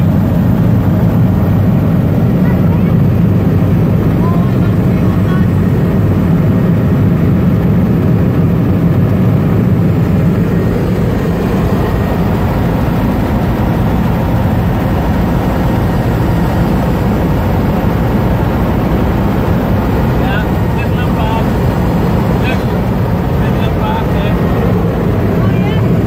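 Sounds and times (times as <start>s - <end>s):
helicopter cabin drone: 0.0s - 26.0s.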